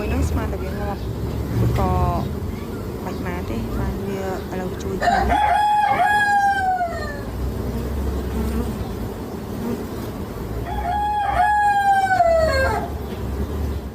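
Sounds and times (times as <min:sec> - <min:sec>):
rooster crowing: 0:05.0 - 0:07.5, 0:10.6 - 0:13.1.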